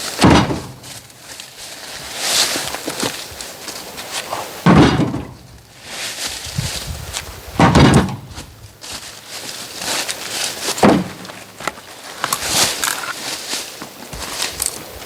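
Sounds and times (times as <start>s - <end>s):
scraping and rustling of logs: 0.0s - 15.0s
heavy wooden knocks of logs: 0.2s - 1.0s, 4.6s - 5.5s, 7.6s - 8.5s, 10.8s - 11.8s.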